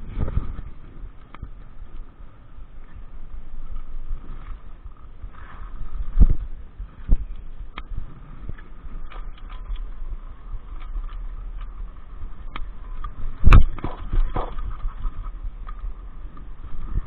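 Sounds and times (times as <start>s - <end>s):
low rumble: 0.0s - 17.0s
wind noise: 0.0s - 17.0s
knocks and thumps: 13.5s - 14.9s.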